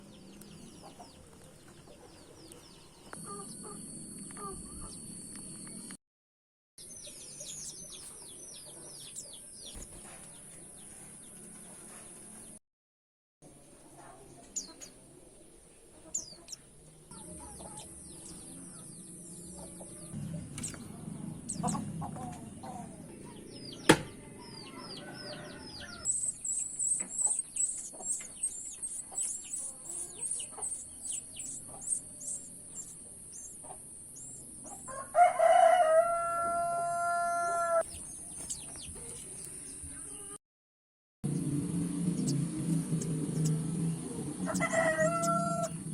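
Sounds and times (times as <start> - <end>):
rooster crowing: 24.2 - 26.1, 34.8 - 37.9, 44.2 - 45.8
high thin bird chirps: 26.1 - 34.9.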